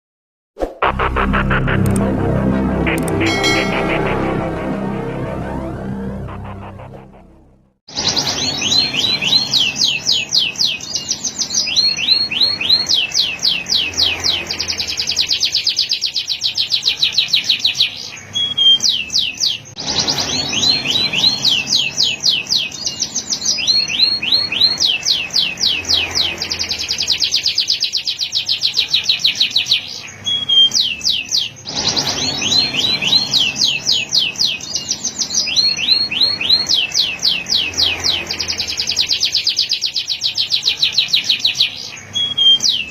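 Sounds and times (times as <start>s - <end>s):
canary singing trills: 7.9s - 42.9s.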